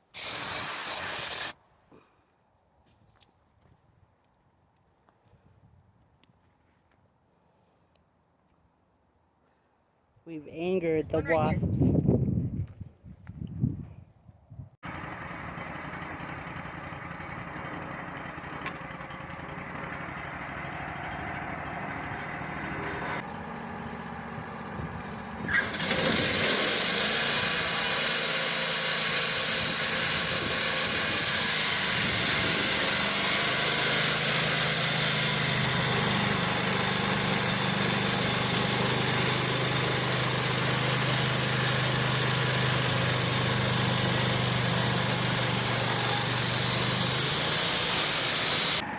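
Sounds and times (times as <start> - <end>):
band saw blade whirring: 0.0 - 1.6, 21.8 - 23.2, 24.8 - 48.9
sawmill engine running: 14.8 - 48.9
deep engine hum: 14.9 - 25.8.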